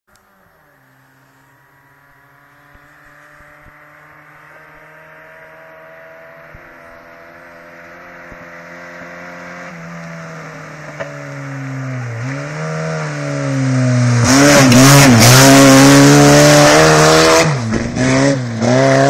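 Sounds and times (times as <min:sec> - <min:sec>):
car engine approaching: 0:00.1 - 0:19.0.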